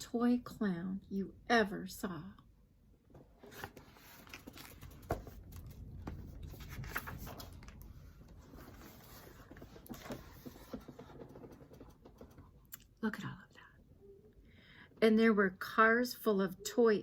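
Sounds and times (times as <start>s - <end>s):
book pages turning: 3.4s - 12.3s.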